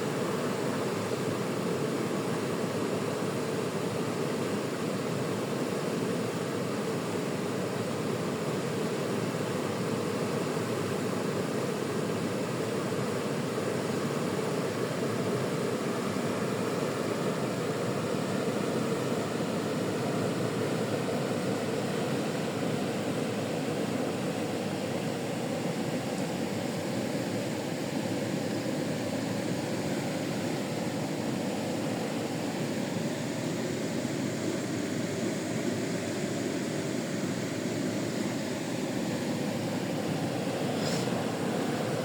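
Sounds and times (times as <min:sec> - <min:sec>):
river water rushing: 0:00.0 - 0:42.0.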